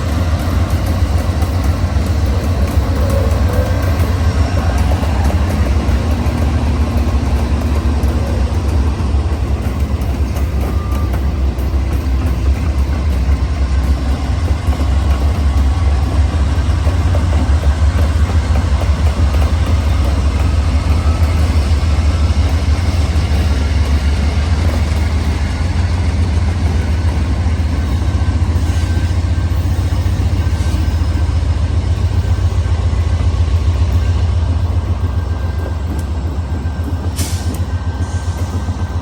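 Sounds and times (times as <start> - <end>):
train rumbling: 0.0 - 39.0.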